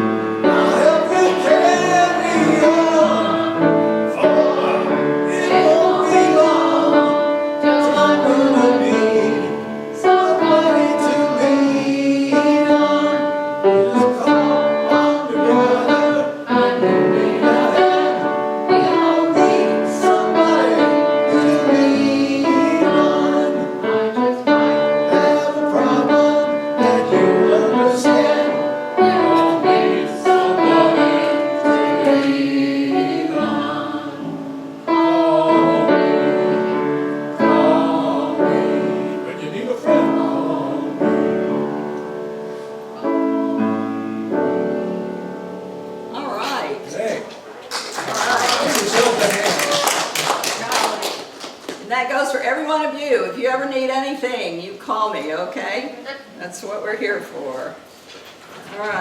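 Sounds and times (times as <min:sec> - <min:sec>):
congregation singing with accompaniment: 0:00.0 - 0:46.0.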